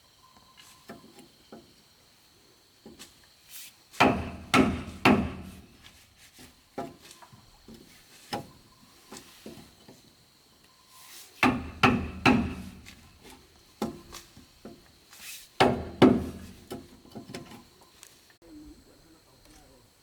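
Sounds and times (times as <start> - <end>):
hand tool knocking on wood: 4.0 - 5.9, 11.4 - 14.9, 15.6 - 17.6.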